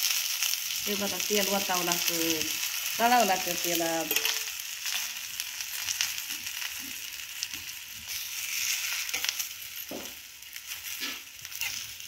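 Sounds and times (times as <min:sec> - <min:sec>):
food sizzling in oil: 0:00.0 - 0:12.0
metal spatula scraping pan: 0:04.1 - 0:04.5, 0:10.7 - 0:12.0.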